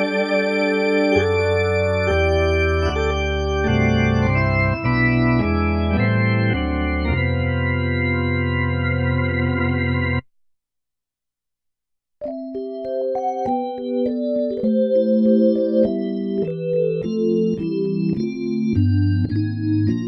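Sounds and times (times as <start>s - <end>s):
synthesizer organ chords: 0.0s - 10.2s, 12.2s - 20.0s.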